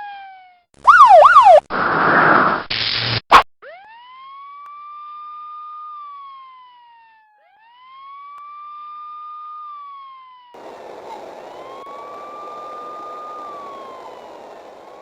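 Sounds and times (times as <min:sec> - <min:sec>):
police siren wailing: 0:00.0 - 0:01.7, 0:03.6 - 0:15.0
road and traffic noise: 0:10.6 - 0:15.0.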